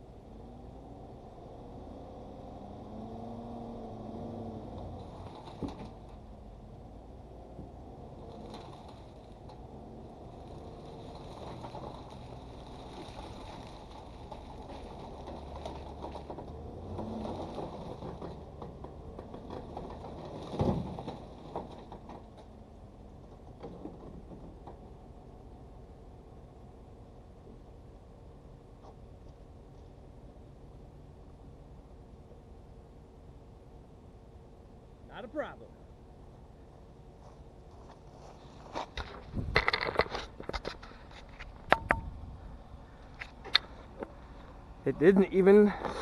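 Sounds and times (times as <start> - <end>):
pickup engine revving under load: 0.3 - 22.1.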